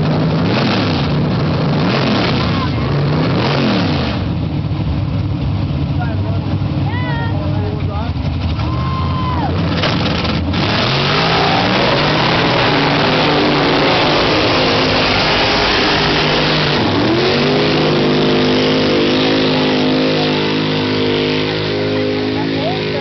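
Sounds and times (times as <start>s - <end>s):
truck engine revving hard: 0.0s - 4.9s, 7.6s - 23.0s
loud rushing noise: 9.6s - 23.0s.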